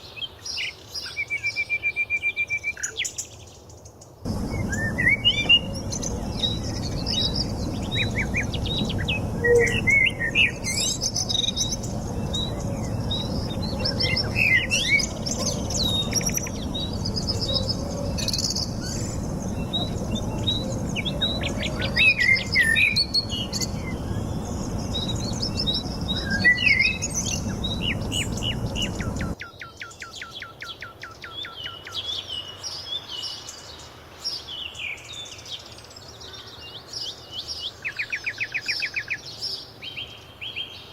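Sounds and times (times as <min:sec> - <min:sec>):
low background rush: 0:04.3 - 0:29.4
birds chirping and whistling: 0:04.3 - 0:30.3
bird trill: 0:04.3 - 0:32.0.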